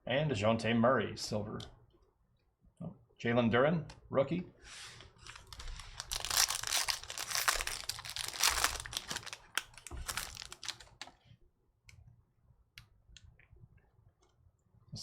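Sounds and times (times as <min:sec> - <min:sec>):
wrapper crinkling and tearing: 0:05.2 - 0:11.2.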